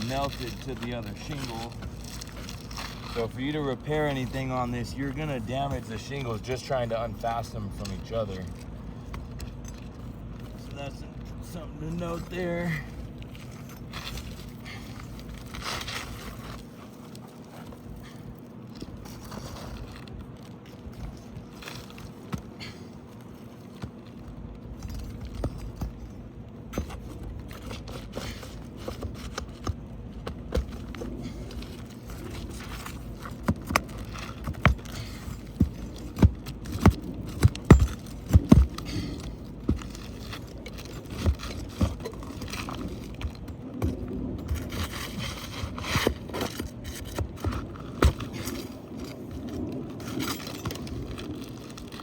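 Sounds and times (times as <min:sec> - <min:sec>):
roof shingle scraping: 0:00.0 - 0:52.0
shingle tearing: 0:00.0 - 0:52.0
hand tool knocks and cracks: 0:32.5 - 0:45.0.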